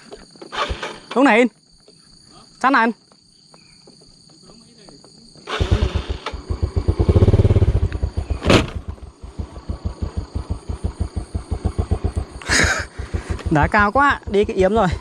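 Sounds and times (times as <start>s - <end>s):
motorbike engine revving: 5.5s - 15.0s
sharp knock: 8.4s - 9.0s.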